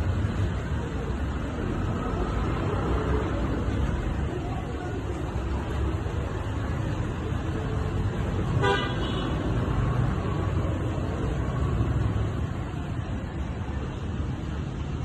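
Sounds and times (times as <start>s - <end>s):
car horn toot: 8.6s - 9.2s.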